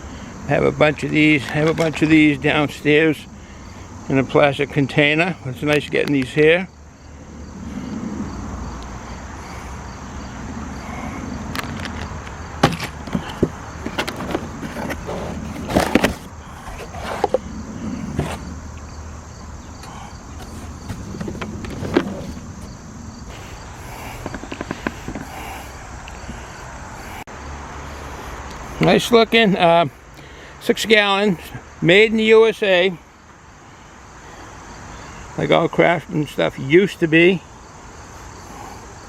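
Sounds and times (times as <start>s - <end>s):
steady background noise: 0.0s - 39.0s
rattling: 10.8s - 26.3s
clicks and knocks of handling: 11.6s - 17.4s, 24.2s - 25.3s.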